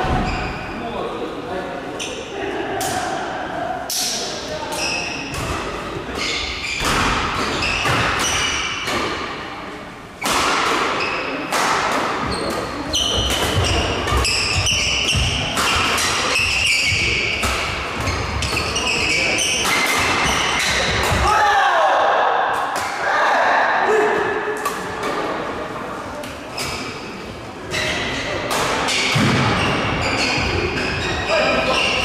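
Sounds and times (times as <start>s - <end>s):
players' voices: 0.0s - 32.0s
court impacts echoing: 5.2s - 23.1s, 27.7s - 32.0s.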